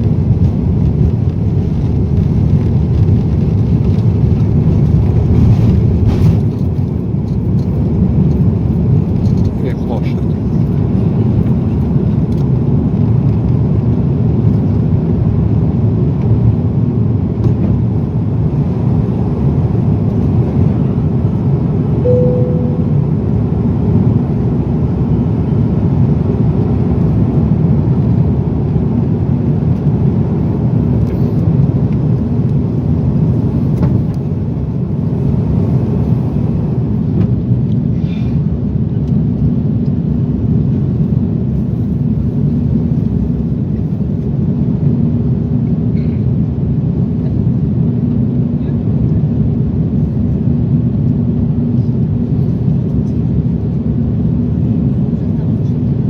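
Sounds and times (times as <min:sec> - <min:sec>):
airliner cabin engine rumble: 0:00.0 - 0:56.0
short tone: 0:22.0 - 0:23.4.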